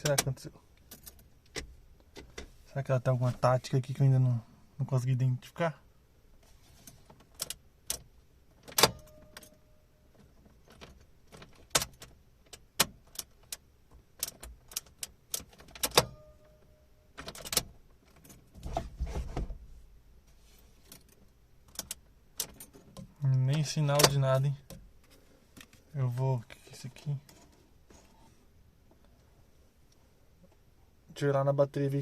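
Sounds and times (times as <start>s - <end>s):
ignition key clicks and knocks: 7.3s - 9.6s, 10.2s - 16.5s, 21.1s - 24.9s.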